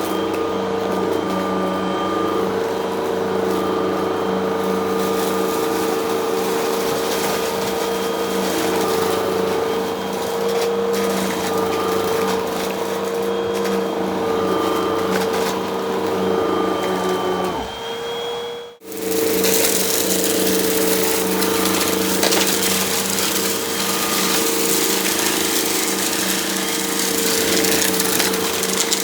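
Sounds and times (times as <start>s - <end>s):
vacuum cleaner running: 0.0s - 29.0s
vacuum sucking up crunchy debris: 18.8s - 29.0s.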